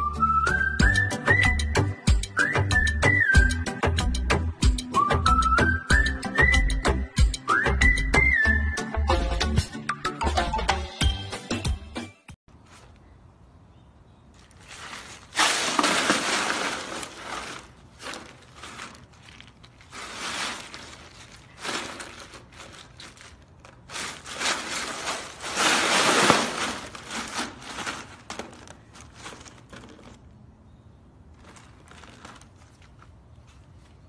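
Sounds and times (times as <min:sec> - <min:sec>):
ice cubes crunching and clattering: 0:14.4 - 0:30.2.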